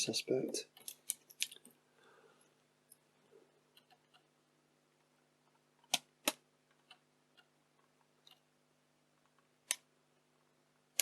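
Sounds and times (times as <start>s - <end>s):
faint steady hum: 0.0s - 11.0s
circuit board clicks and ticks: 5.9s - 7.5s.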